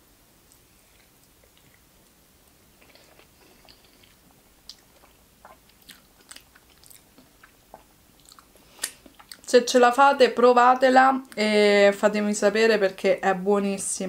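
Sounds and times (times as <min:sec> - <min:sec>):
person chewing with lip smacks: 0:02.8 - 0:09.5.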